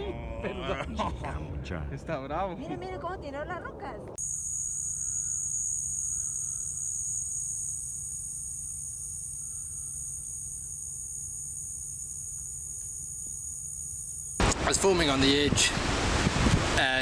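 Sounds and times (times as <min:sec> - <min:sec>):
insect chorus: 0:04.2 - 0:14.4.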